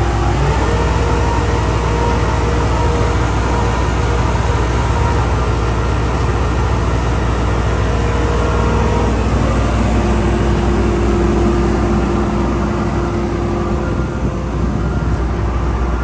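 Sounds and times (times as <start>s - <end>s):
diesel engine droning: 0.0s - 16.0s
steady higher tone: 7.5s - 16.0s.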